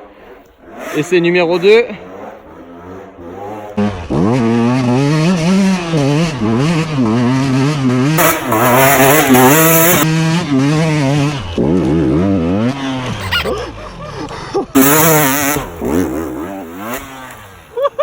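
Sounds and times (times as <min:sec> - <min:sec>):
dirt bike engine revving: 0:00.6 - 0:11.4.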